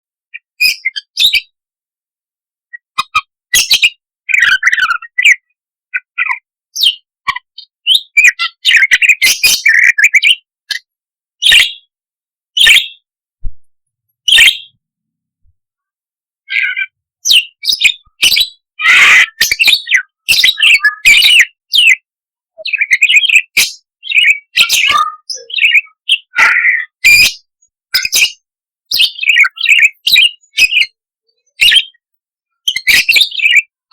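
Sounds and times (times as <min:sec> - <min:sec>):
budgerigar chattering and chirping: 0:06.0 - 0:10.8, 0:11.4 - 0:11.9, 0:12.6 - 0:13.0, 0:14.3 - 0:14.7, 0:16.5 - 0:22.0, 0:22.6 - 0:31.0, 0:31.6 - 0:32.0, 0:32.7 - 0:33.7.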